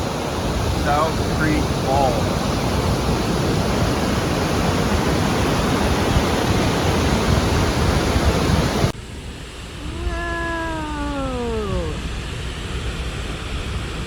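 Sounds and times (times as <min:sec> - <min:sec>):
waterfall rushing: 0:00.0 - 0:08.9
falling voice-like call: 0:09.8 - 0:12.0.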